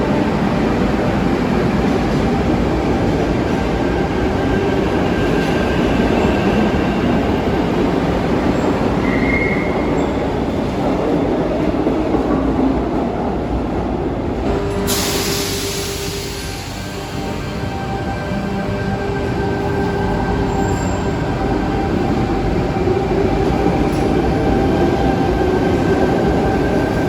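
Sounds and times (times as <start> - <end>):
train rumbling through station: 0.0 - 27.0
train wheel squeal: 8.5 - 10.3, 20.4 - 21.3.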